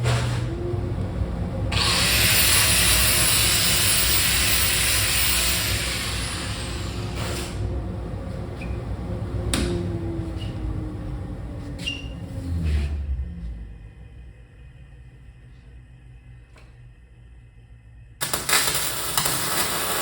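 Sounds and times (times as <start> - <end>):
motor winding down: 1.6 - 7.8
grinder grinding metal: 1.7 - 6.8.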